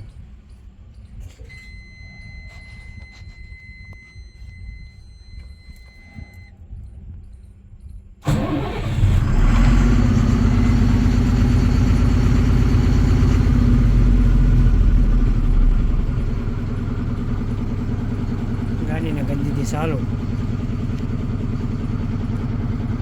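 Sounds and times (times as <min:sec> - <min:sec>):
diesel truck engine starting and revving: 0:08.2 - 0:23.0.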